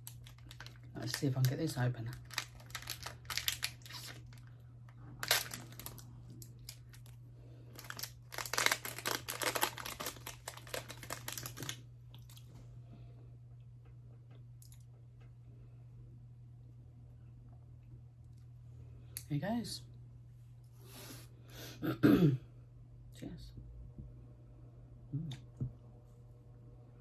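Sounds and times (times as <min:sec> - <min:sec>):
packaging clicks: 0:00.0 - 0:04.4, 0:05.2 - 0:06.0, 0:07.8 - 0:11.8
packaging rustling: 0:00.0 - 0:04.5, 0:05.2 - 0:07.2, 0:07.8 - 0:11.8.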